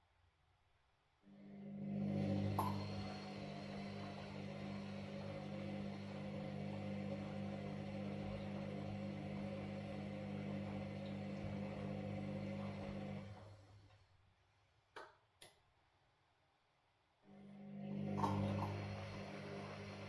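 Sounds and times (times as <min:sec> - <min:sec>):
washing machine running: 0:01.6 - 0:13.9, 0:17.6 - 0:20.0.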